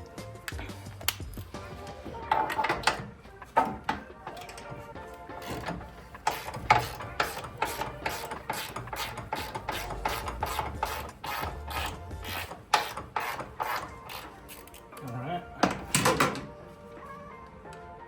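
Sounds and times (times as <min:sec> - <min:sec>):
ratchet wrench clicking: 0:05.4 - 0:14.9.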